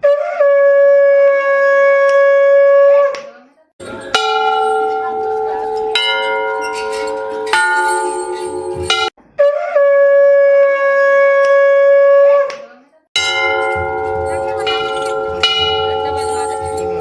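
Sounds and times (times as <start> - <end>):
temple bells clanging: 3.8 - 9.2, 13.2 - 17.0.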